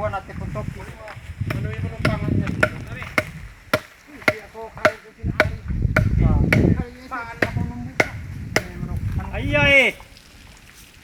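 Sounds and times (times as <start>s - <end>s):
blade chopping wood: 1.5s - 6.8s, 7.4s - 8.8s.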